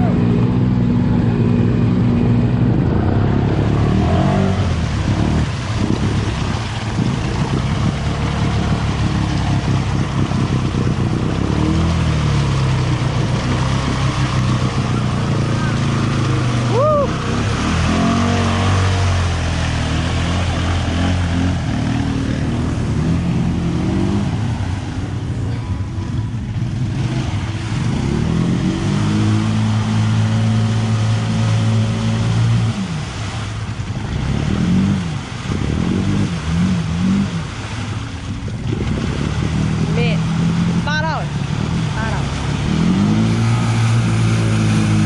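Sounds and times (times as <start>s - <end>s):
atv engine revving: 0.0s - 45.0s.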